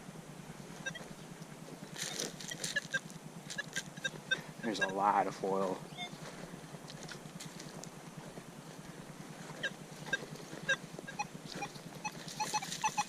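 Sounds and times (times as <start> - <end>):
metal detector beeps: 0.8 - 1.1, 2.4 - 5.1, 5.9 - 6.2, 9.5 - 13.0.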